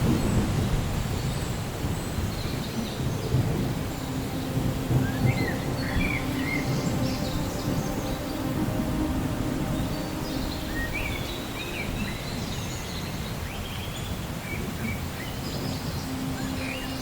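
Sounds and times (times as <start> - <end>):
thunder rumbling: 0.0 - 13.6
rain: 0.0 - 17.0.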